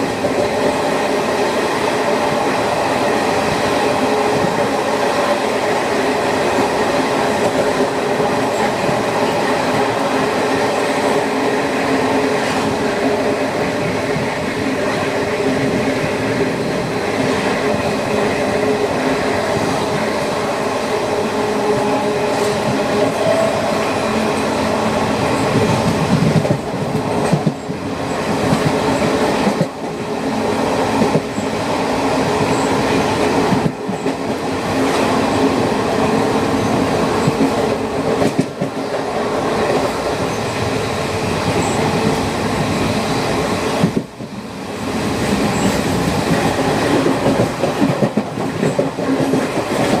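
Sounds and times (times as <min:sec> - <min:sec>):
train rumbling on rails: 0:00.0 - 0:50.0.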